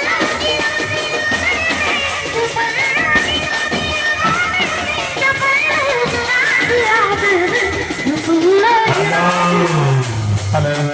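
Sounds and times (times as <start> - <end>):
live band music: 0.0 - 10.9.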